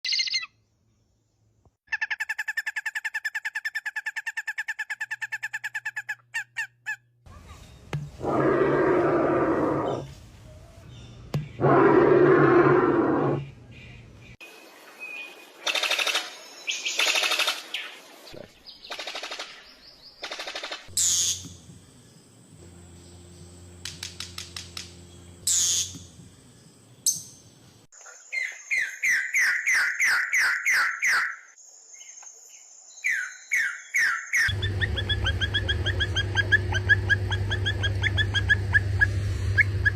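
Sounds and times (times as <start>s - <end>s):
bird dry clicks: 18.9s - 19.6s, 20.2s - 20.9s, 23.8s - 24.9s
bird fast trill: 33.1s - 39.9s.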